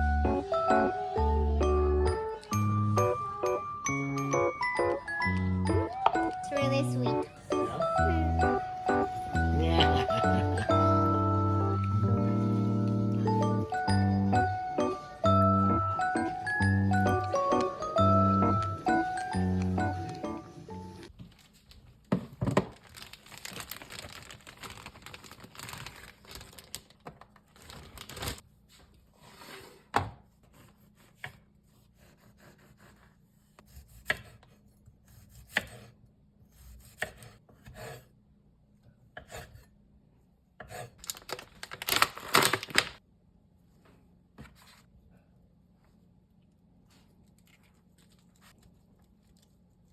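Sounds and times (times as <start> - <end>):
packaging rustling: 21.2 - 28.4, 41.0 - 43.0.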